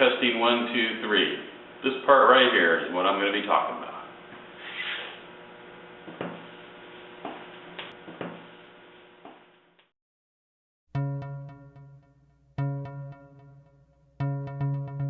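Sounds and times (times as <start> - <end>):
steady electrical hum: 0.0 - 9.6.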